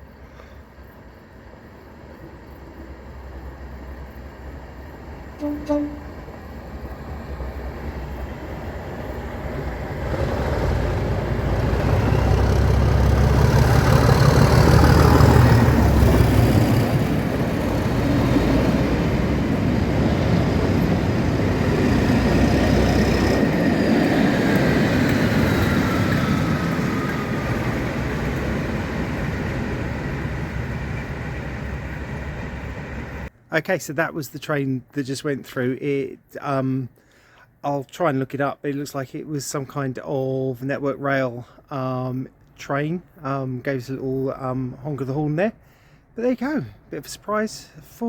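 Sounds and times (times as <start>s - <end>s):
train passing rumble: 0.0s - 33.5s.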